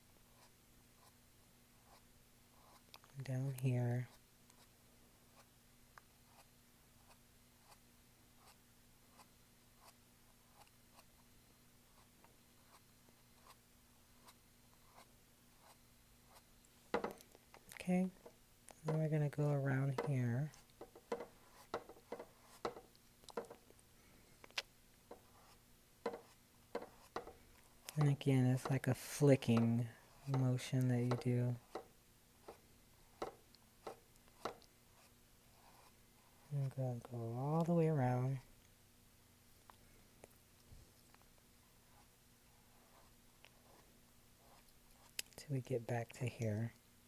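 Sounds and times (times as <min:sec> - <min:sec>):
low steady hum: 0:00.0 - 0:47.0
paintbrush tapping on canvas: 0:16.9 - 0:17.3, 0:20.8 - 0:23.6, 0:25.1 - 0:27.4, 0:33.2 - 0:34.7.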